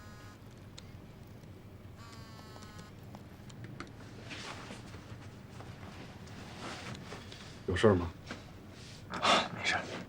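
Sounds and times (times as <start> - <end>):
phone ringing buzzy tone: 0.0 - 0.4, 2.0 - 2.9.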